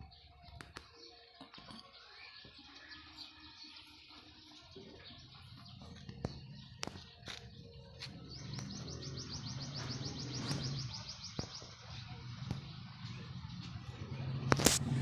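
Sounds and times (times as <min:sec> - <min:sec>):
bird chirping rapidly: 0:05.0 - 0:14.2.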